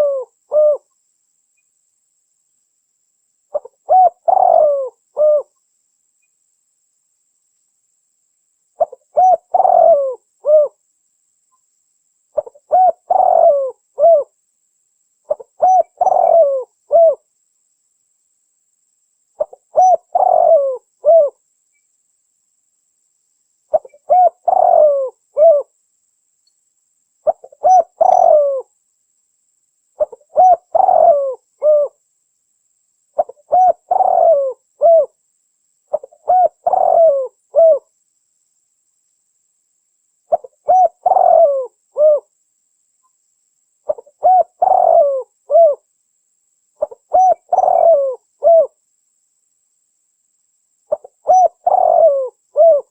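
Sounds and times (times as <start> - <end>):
dove cooing: 0.0 - 0.9, 3.5 - 5.5, 8.8 - 10.8, 12.4 - 14.3, 15.3 - 17.2, 19.4 - 21.4, 23.7 - 25.7, 27.2 - 28.7, 30.0 - 32.0, 33.2 - 35.2, 35.9 - 37.9, 40.3 - 42.3, 43.9 - 45.8, 46.8 - 48.8, 50.9 - 52.9.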